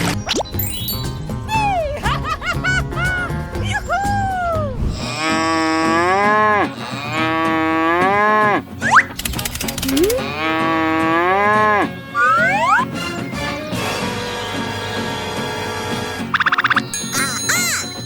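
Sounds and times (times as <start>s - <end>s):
rising whistle-like glides: 0.0s - 5.9s, 12.2s - 13.3s
cow mooing: 5.2s - 8.6s, 10.1s - 12.4s.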